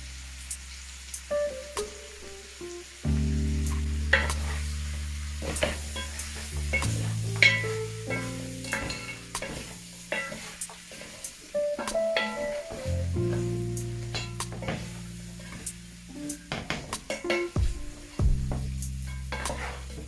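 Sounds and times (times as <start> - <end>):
meat sizzling in a pot: 0.0 - 20.0
background music with bass: 1.3 - 9.9, 11.9 - 16.5, 17.4 - 20.0
spoon scraping a pot: 5.4 - 11.3, 19.1 - 20.0.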